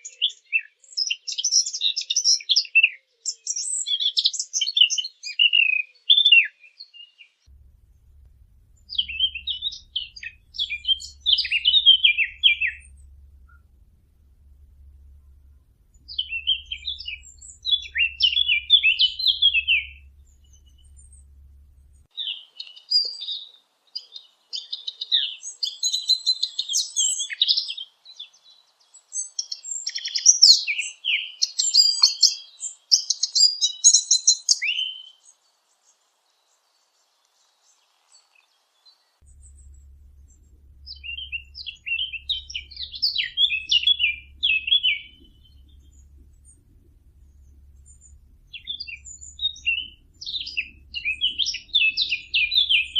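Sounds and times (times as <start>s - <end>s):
faint low hum: 7.5s - 22.3s, 38.8s - 52.9s
songbird warbling: 7.6s - 23.5s, 39.2s - 52.9s.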